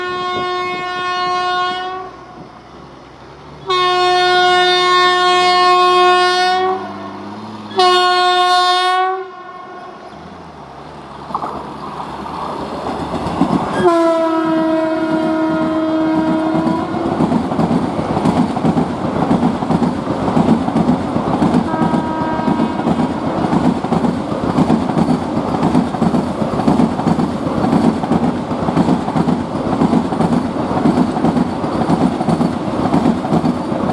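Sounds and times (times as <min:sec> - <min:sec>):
train horn blasts: 0:00.0 - 0:02.4, 0:03.6 - 0:10.0, 0:13.7 - 0:17.2, 0:21.7 - 0:23.2
train wheels clattering on rails: 0:11.2 - 0:33.9.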